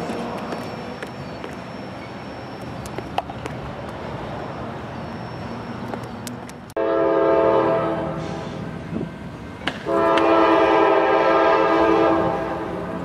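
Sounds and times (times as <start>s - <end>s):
train wheels rumbling on track: 0.0s - 13.0s
locomotive air horn: 6.8s - 8.7s, 9.8s - 13.0s.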